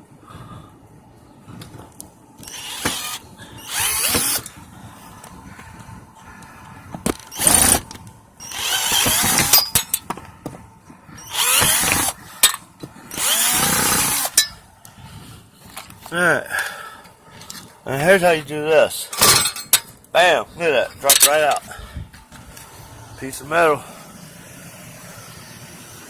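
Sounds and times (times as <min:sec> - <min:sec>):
cordless drill backing out screws: 0:02.4 - 0:04.5, 0:07.1 - 0:09.9, 0:11.2 - 0:14.4.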